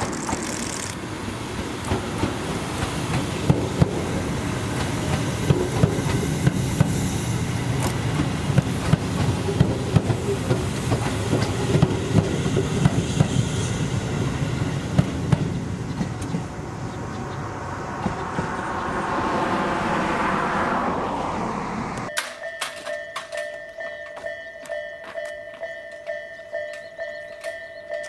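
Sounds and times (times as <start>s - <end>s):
wheels clicking over rail joints: 0.0s - 7.0s, 7.6s - 13.4s, 14.1s - 17.1s, 22.0s - 28.0s
low train rumble: 0.0s - 24.6s
hiss: 4.4s - 8.6s, 10.3s - 14.1s.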